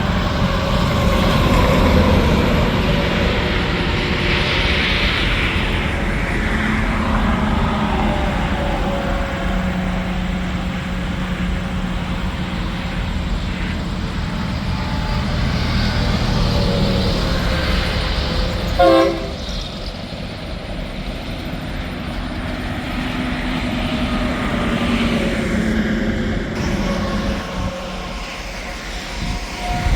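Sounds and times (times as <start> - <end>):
heavy trucks passing: 0.0 - 29.9
truck horn toot: 18.8 - 19.4.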